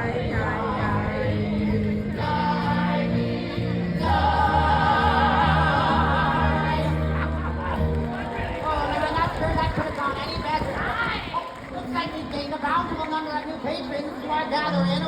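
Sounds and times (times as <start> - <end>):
voices singing long notes: 0.0 - 7.9
backing music: 0.0 - 9.0.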